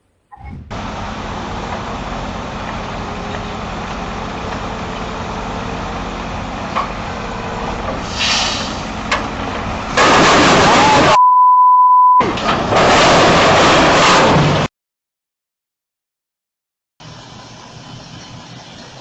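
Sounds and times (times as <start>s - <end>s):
truck engine running: 0.5s - 11.2s, 17.0s - 19.0s
air hiss: 8.0s - 9.0s.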